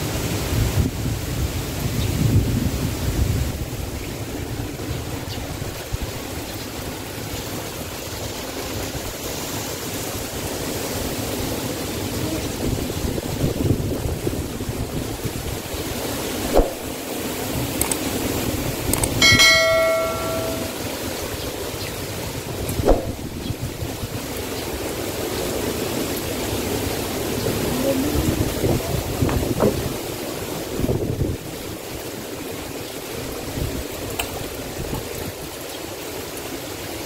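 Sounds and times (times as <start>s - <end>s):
heavy rain: 0.0s - 37.0s
strong wind through palms: 0.0s - 37.0s
sharp knock: 16.6s - 16.8s, 19.0s - 20.8s, 22.8s - 23.2s
bell-like chime: 19.1s - 20.9s.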